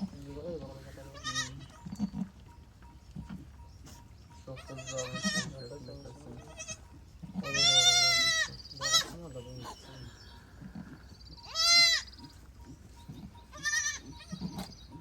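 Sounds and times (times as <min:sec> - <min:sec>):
sheep bleating: 0:01.1 - 0:01.9, 0:04.5 - 0:05.7, 0:06.3 - 0:09.2, 0:11.4 - 0:12.1, 0:13.5 - 0:14.7.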